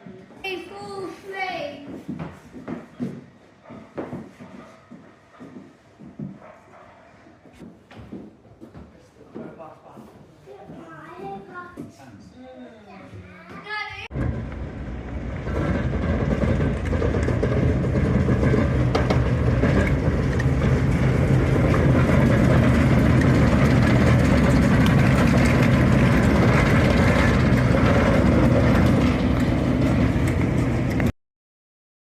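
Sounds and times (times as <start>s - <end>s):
train rumbling on rails: 14.1s - 31.1s
wheels clicking over track: 14.1s - 31.1s.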